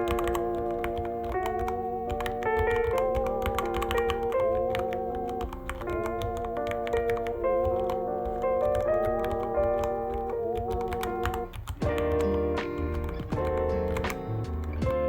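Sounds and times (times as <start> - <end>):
mechanical keyboard typing: 0.0 - 15.0
music with held vibrato notes: 0.0 - 15.0.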